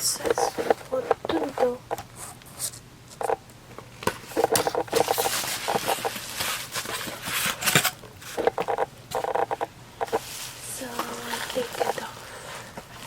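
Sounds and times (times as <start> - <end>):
packaging crinkling and rustling: 4.0 - 9.3.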